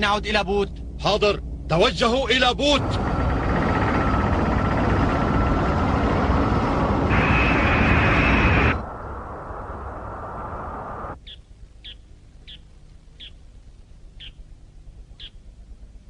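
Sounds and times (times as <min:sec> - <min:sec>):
cartoon spaceship engine rumble: 0:00.0 - 0:11.2.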